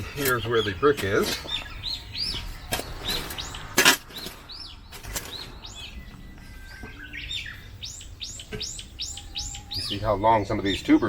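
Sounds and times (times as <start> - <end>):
scraping soil in garden bed: 0.0 - 1.8
birds chirping: 0.0 - 11.0.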